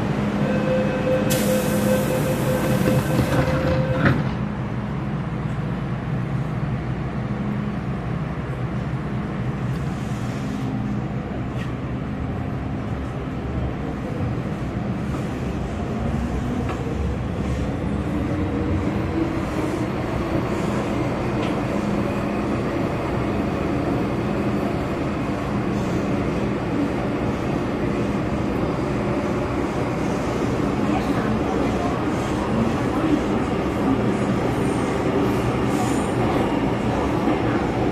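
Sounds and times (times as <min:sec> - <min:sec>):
train wheels rumbling on rail: 0:00.0 - 0:37.9.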